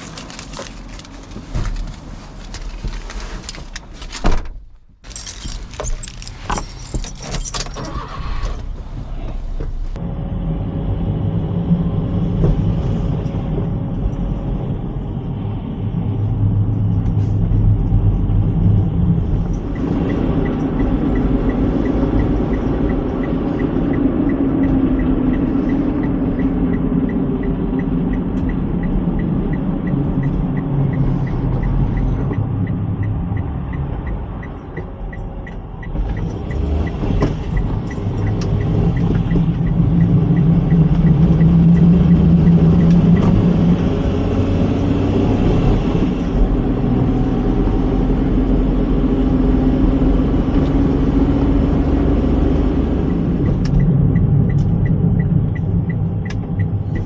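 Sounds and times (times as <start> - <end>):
truck engine and road drone: 0.0 - 57.0
light regular ticking: 19.5 - 43.4, 53.1 - 57.0.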